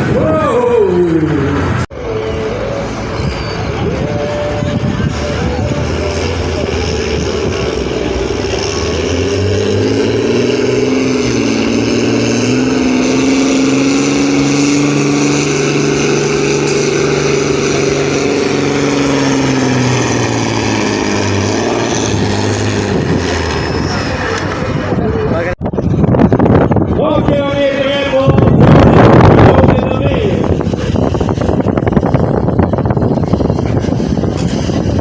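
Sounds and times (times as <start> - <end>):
tractor engine running under load: 1.7 - 26.9.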